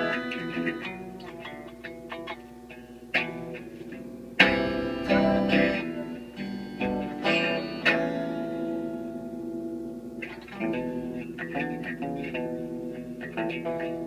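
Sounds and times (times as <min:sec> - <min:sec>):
guitar picking notes and chords: 0:00.0 - 0:14.0.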